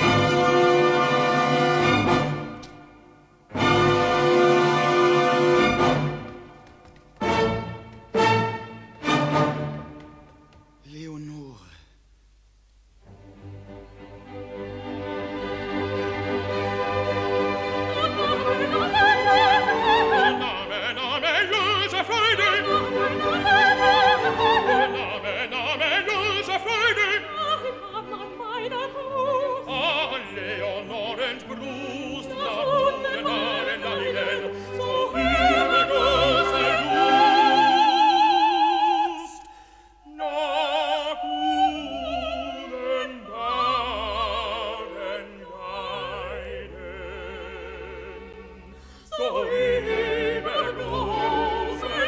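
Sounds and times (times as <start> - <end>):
orchestra: 0.0 - 11.4, 13.0 - 52.0
operatic singing: 13.8 - 52.0.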